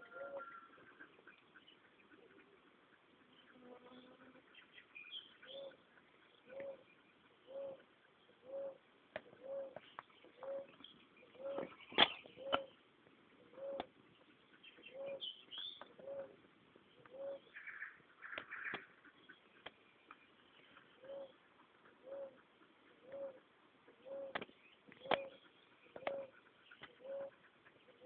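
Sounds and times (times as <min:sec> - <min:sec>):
bird hooting: 0:00.0 - 0:01.1, 0:06.5 - 0:06.8, 0:07.5 - 0:07.8, 0:08.4 - 0:08.8, 0:09.4 - 0:09.8, 0:10.4 - 0:11.7, 0:13.5 - 0:13.9, 0:14.9 - 0:15.3, 0:16.0 - 0:16.3, 0:17.1 - 0:18.8, 0:21.0 - 0:21.4, 0:22.0 - 0:22.4, 0:23.0 - 0:23.4, 0:24.0 - 0:24.4, 0:25.0 - 0:28.0.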